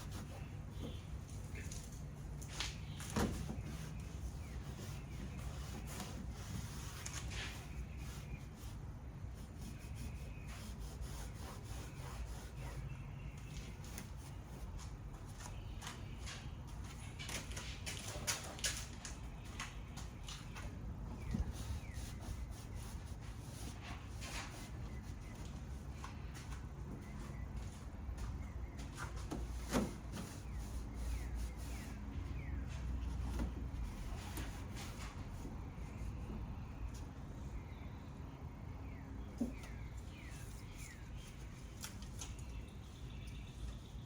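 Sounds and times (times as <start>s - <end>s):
rubbing: 2.9s - 13.0s.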